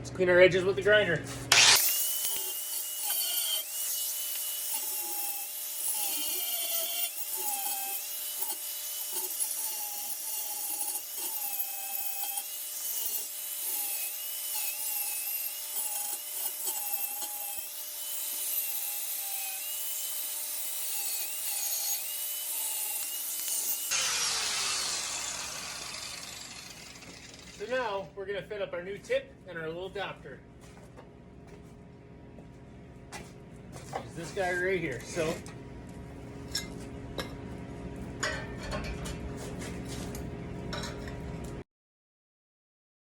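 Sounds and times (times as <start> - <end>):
angle grinder grinding metal: 1.5 - 28.0.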